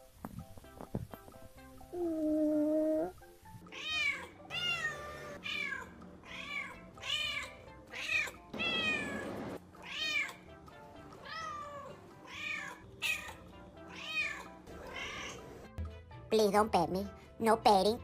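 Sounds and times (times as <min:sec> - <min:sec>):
cat meowing: 0:03.7 - 0:10.4, 0:11.2 - 0:15.5.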